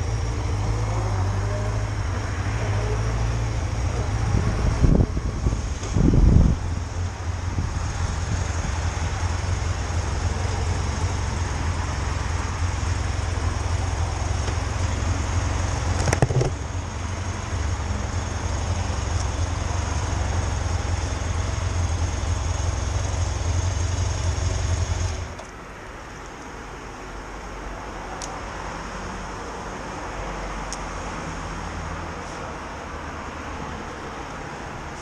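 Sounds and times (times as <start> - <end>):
motorcycle engine running: 0.0 - 25.4
wind and road noise: 0.0 - 35.0.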